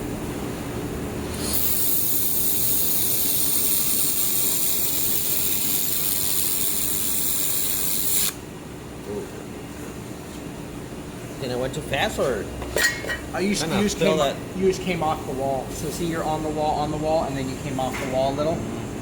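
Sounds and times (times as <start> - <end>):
welding machine low hum: 0.0 - 8.4
laser welder hiss: 1.4 - 8.4.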